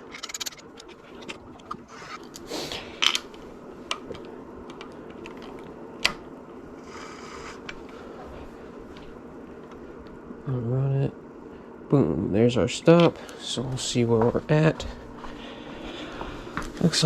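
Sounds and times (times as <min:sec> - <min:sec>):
steady background hum: 0:00.0 - 0:17.0
metal clicks and scrapes: 0:00.1 - 0:02.3.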